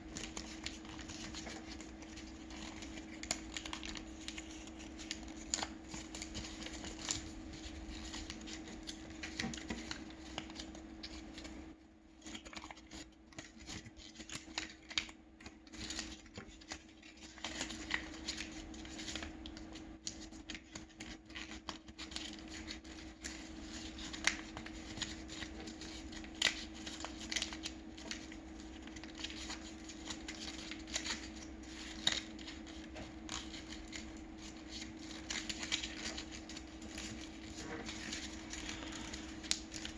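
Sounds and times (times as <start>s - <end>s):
paper folding and crinkling: 0.0s - 39.9s
steady low hum: 27.3s - 39.9s.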